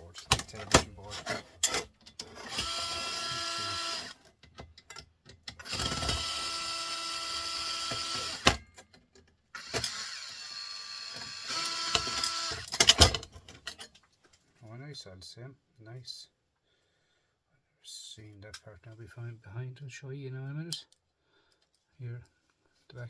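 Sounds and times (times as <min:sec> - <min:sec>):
metal and plastic clicks: 0:00.2 - 0:00.9, 0:11.2 - 0:14.0
electric screwdriver whining: 0:02.2 - 0:04.3, 0:05.5 - 0:08.7, 0:09.6 - 0:13.2.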